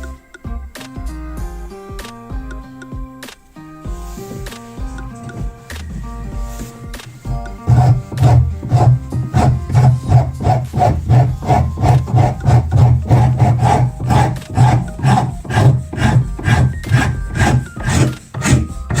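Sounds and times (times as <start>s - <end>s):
hand file strokes: 4.0s - 19.0s.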